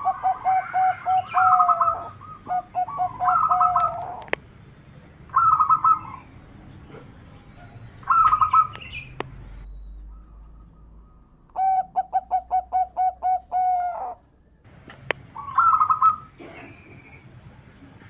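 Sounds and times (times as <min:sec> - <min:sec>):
dove cooing: 0:00.0 - 0:04.4, 0:05.3 - 0:09.2, 0:10.1 - 0:14.2, 0:15.2 - 0:17.2
high trilled bird calls: 0:00.0 - 0:04.4, 0:05.3 - 0:14.3, 0:15.0 - 0:17.3
sharp clicks: 0:08.3 - 0:09.4.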